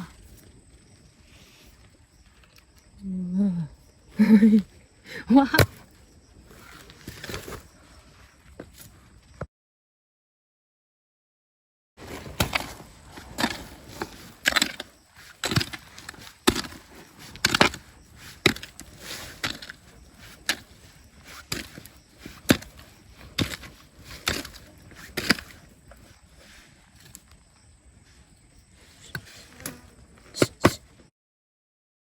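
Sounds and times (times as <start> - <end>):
hand tool striking rocky ground: 12.0 - 25.8.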